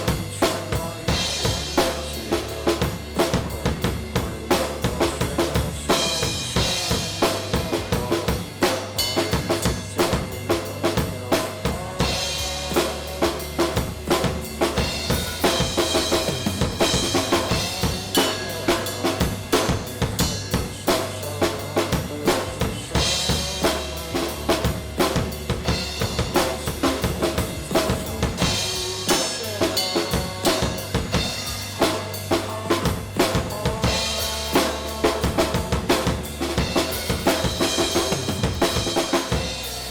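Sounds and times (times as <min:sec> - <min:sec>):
rock drum groove: 0:00.0 - 0:39.9
sustained bass and guitar: 0:00.0 - 0:39.9.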